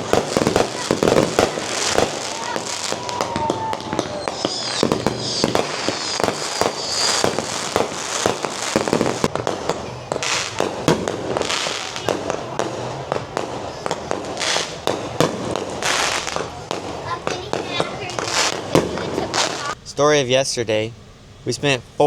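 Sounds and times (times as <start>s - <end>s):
high falling whistle: 0.0s - 10.7s
sharp pops and bangs: 0.0s - 19.8s.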